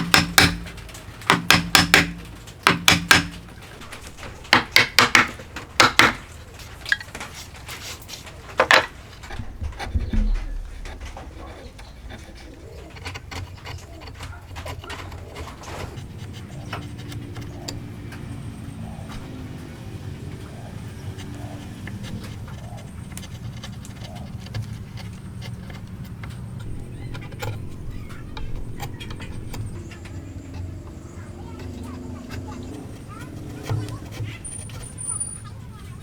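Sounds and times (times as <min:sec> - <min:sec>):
sharp clicks and taps: 0:00.0 - 0:07.3
bird cooing: 0:09.9 - 0:25.6.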